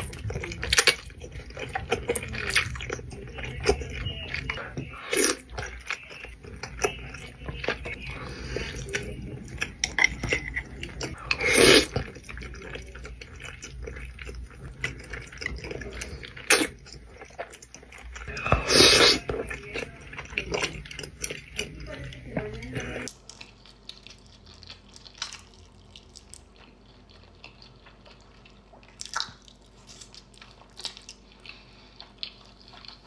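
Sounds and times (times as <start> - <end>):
wet chewing with small clicks: 19.2 - 33.0.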